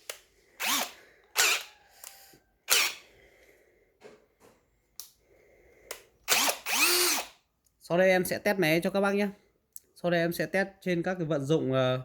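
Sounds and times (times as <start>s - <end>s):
cordless drill bursts: 0.6s - 3.0s, 6.3s - 7.4s.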